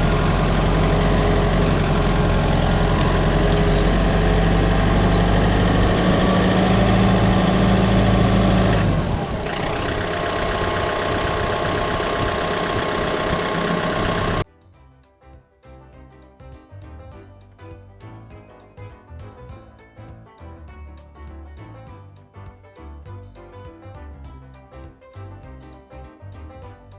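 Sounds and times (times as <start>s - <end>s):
engine running with low hum: 0.0s - 14.4s.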